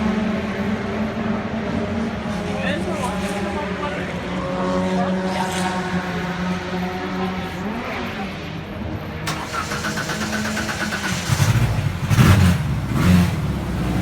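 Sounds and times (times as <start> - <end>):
engine revving: 0.0 - 14.0
race car engine idling: 8.6 - 14.0.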